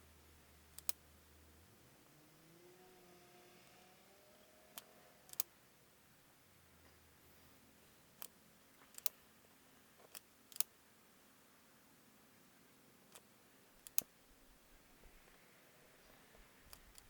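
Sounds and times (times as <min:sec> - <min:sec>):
small hand tools clicking: 0:04.7 - 0:05.5, 0:13.1 - 0:14.1, 0:16.7 - 0:17.0.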